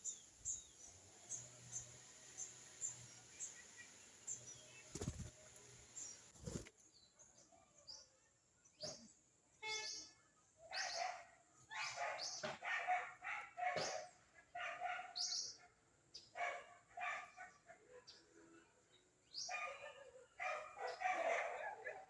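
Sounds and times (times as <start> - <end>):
dog barking: 10.7 - 15.8, 16.4 - 18.2, 19.5 - 22.0.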